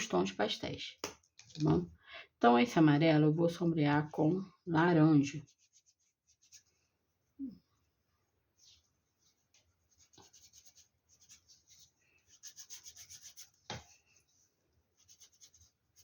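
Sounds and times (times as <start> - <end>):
crayon rubbing on foam: 5.3 - 6.8, 8.6 - 16.0.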